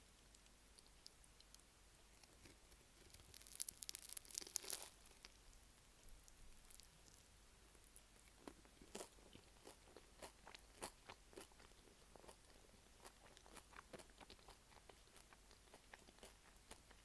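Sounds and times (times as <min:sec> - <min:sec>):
pie pastry crunching when chewed: 0:00.3 - 0:17.0.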